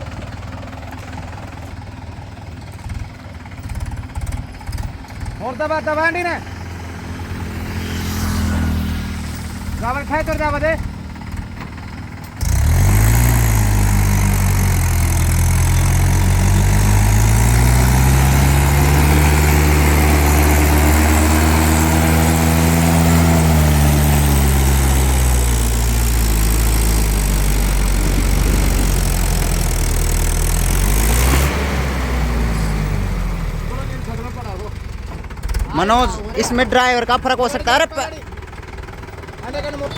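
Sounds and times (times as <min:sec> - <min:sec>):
diesel tractor engine revving: 0:00.0 - 0:39.9.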